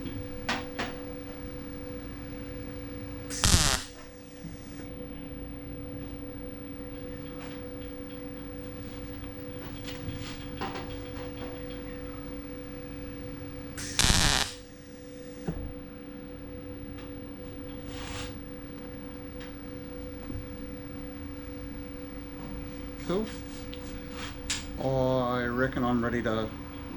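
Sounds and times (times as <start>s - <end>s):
workshop hum: 0.0s - 26.9s
welding crackling burst: 3.3s - 4.0s, 13.8s - 14.7s.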